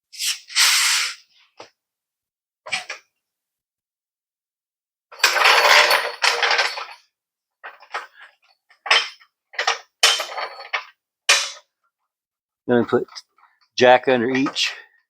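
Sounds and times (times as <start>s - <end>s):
metal tools rattling: 5.2s - 7.0s, 7.6s - 11.6s.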